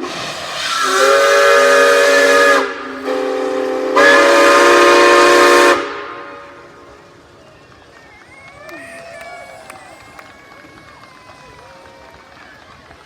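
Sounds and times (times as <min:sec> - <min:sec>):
steam locomotive whistle: 0:00.0 - 0:10.0.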